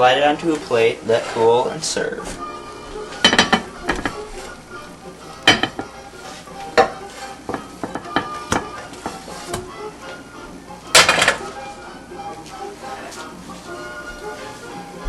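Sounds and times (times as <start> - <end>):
utensil scraping frying pan: 0.1 - 10.3, 10.9 - 11.7
frying sizzle: 2.4 - 11.6.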